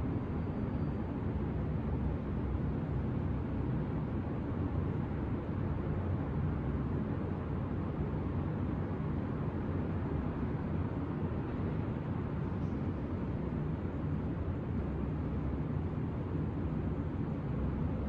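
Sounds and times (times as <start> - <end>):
distant city traffic rumble: 0.0 - 18.0
faint engine hum: 0.0 - 18.0.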